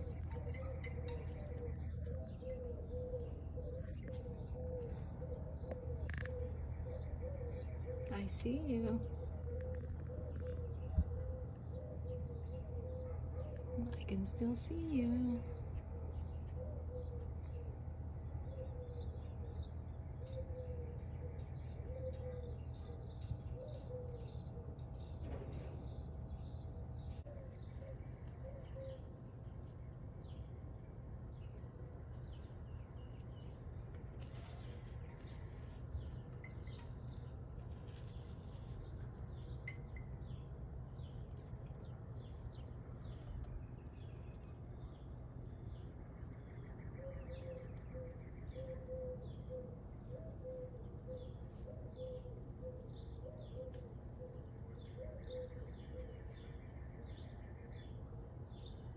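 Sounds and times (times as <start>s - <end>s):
cooing calls: 0.0s - 8.1s, 20.2s - 24.8s, 47.0s - 56.4s
low background rumble: 0.0s - 23.5s
birds chirping: 0.0s - 58.9s.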